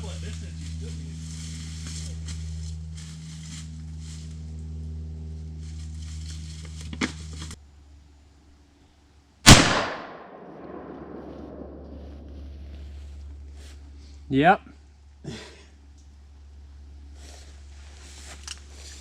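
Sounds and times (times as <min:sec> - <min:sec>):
steady low hum: 0:00.0 - 0:19.0
rifle shot: 0:09.4 - 0:12.3.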